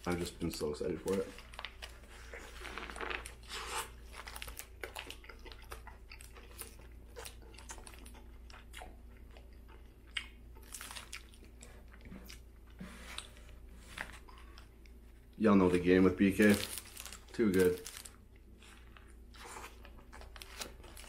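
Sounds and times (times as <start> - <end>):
wet chewing: 1.2 - 12.5.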